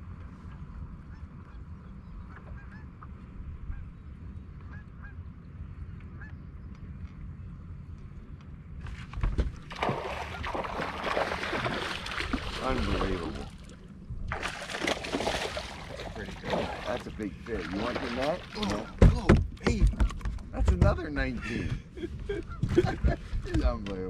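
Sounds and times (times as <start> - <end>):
faint honking bird calls: 0.5 - 6.6.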